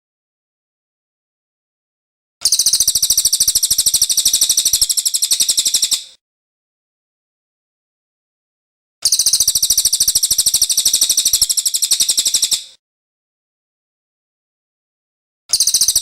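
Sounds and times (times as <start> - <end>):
bird singing fast high trill: 2.4 - 6.2, 9.0 - 12.8, 15.5 - 16.0.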